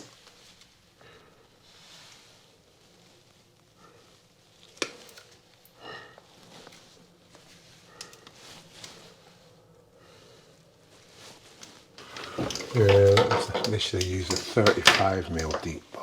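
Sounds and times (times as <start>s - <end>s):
handling noises on electrical wiring: 11.4s - 16.0s.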